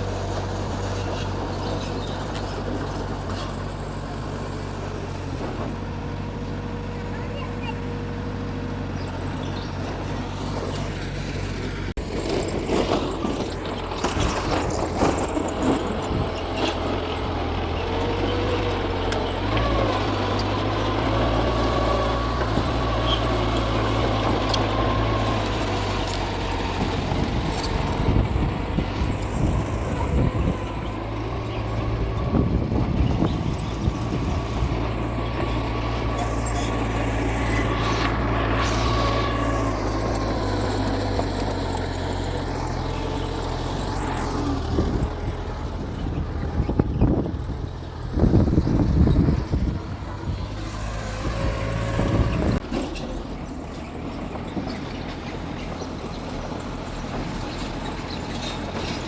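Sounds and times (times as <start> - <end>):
bulldozer diesel engine running: 0.0 - 59.0
tracks and blade clanking: 9.1 - 59.0.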